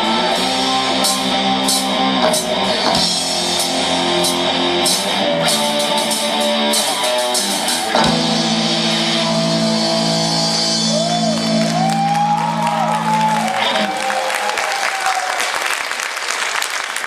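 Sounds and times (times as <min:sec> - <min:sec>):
bending lead guitar line: 0:00.0 - 0:14.3
live rock band playing: 0:00.0 - 0:14.4
ringing final guitar chord: 0:07.8 - 0:13.8.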